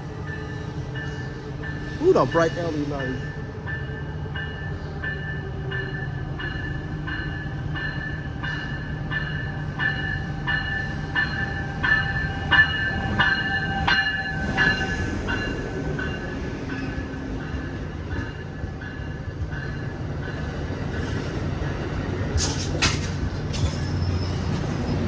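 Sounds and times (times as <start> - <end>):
locomotive bell ringing: 0.3 - 16.4
diesel locomotive engine running: 1.1 - 3.6.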